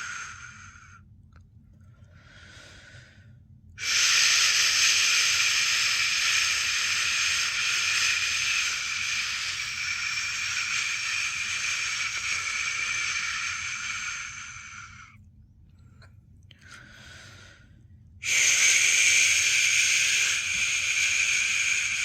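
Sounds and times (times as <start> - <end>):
person shushing: 3.8 - 15.1, 18.2 - 22.0.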